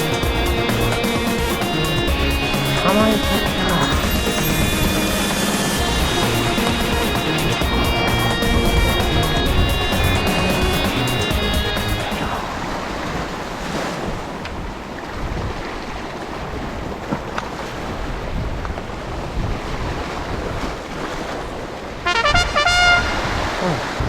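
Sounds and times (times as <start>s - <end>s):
music: 0.0s - 12.4s, 22.1s - 23.1s
sea waves: 0.0s - 24.0s
wind buffeting microphone: 3.5s - 22.0s.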